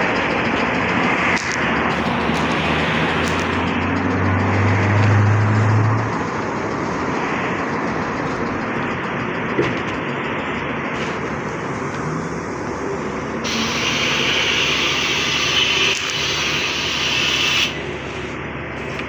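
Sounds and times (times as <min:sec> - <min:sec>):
trolleybus ride noise: 0:00.0 - 0:19.0
loud hiss: 0:01.9 - 0:03.6, 0:11.0 - 0:18.4.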